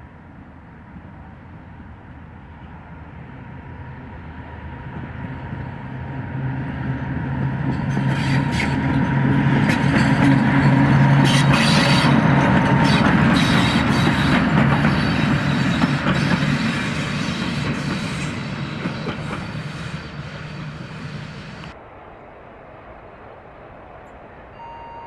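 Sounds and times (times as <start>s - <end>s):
train low hum: 0.0s - 25.0s
train wheels clicking over rail joints: 7.7s - 21.8s.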